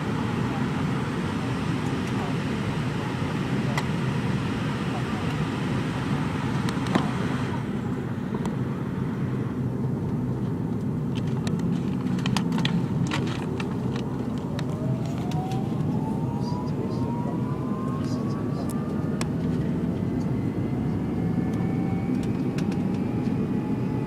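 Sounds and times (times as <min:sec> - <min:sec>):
airliner cabin rumble: 0:00.0 - 0:24.0
rising whine: 0:11.2 - 0:24.0.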